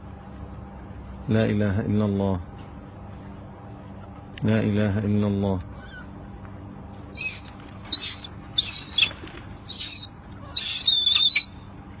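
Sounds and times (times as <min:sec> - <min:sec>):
birds chirping: 0:07.1 - 0:11.8.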